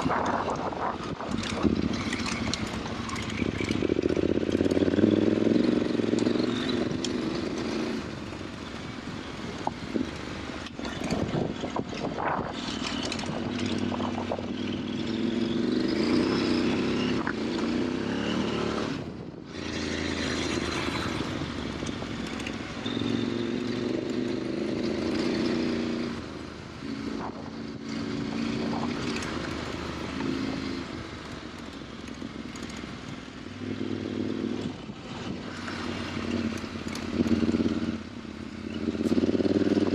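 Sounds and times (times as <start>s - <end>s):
wind rush: 0.0s - 4.5s, 10.8s - 14.6s
motorcycle engine running: 0.0s - 39.9s.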